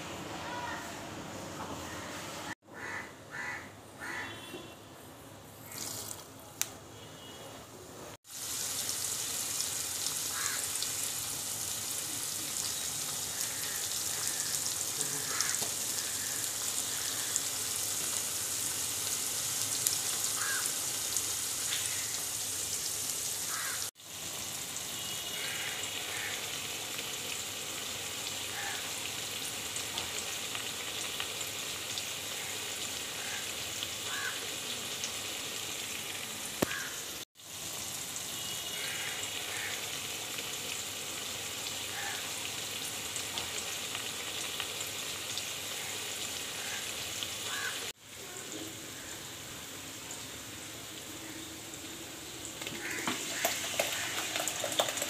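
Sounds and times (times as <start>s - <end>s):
onions frying in hot oil: 5.6s - 6.7s, 8.2s - 55.0s.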